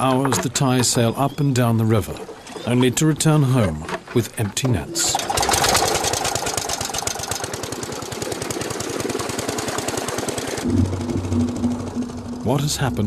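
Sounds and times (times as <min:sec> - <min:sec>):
boat engine knocking: 0:05.1 - 0:13.0.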